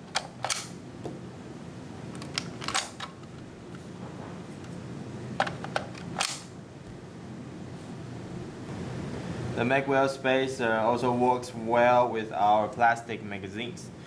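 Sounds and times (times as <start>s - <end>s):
magazine clacking into magwell: 0.2s - 0.8s, 6.2s - 6.5s.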